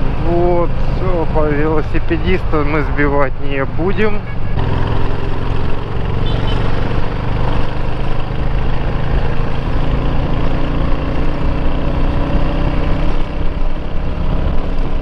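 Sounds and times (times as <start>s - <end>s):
wind and road noise: 0.0s - 15.0s
motorcycle engine running: 4.2s - 15.0s.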